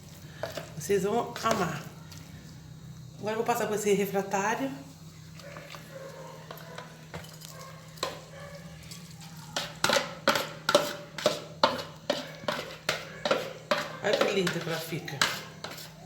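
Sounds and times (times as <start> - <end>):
spoon clinking against dishes: 6.4 - 15.8.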